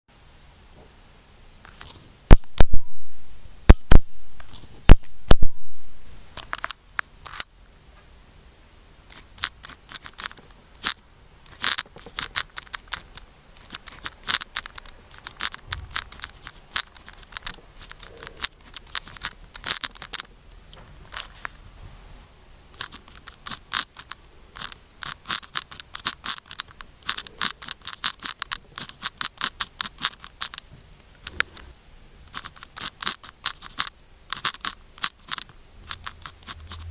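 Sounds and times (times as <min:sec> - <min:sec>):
pen scratching on paper: 0:35.2 - 0:36.9.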